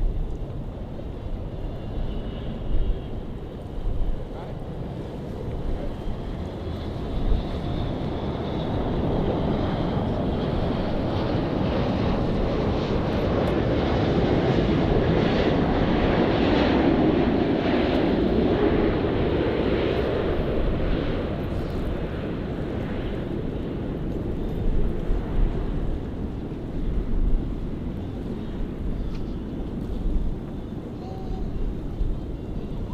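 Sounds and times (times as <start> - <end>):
jet engines roaring: 0.0 - 32.9.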